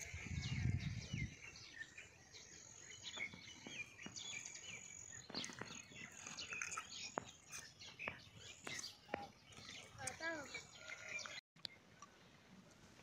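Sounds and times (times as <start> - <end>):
birds chirping and calling: 0.0 - 11.4.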